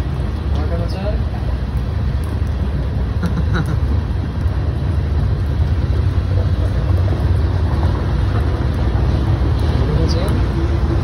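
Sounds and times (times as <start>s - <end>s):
freight train rolling past: 5.5s - 11.0s.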